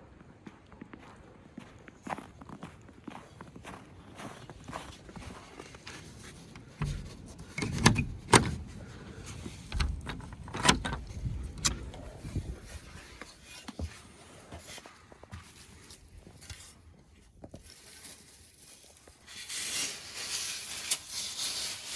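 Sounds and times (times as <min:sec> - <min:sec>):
irregular knocks and clatters: 0:05.8 - 0:12.1.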